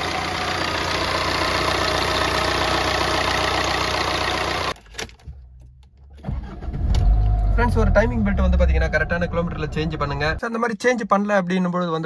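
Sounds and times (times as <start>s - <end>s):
diesel engine idling: 0.0s - 4.8s.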